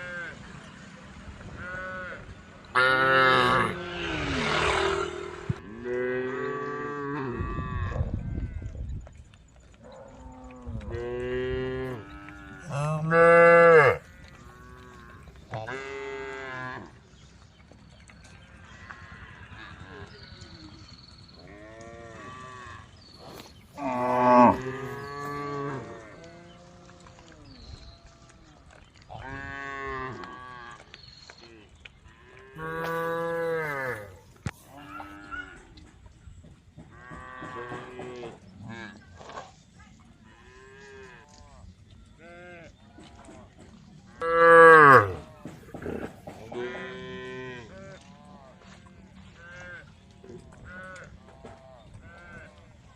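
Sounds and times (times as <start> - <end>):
cows mooing: 1.6 - 8.0, 10.3 - 16.9, 23.8 - 26.2, 32.5 - 35.6, 44.2 - 47.8.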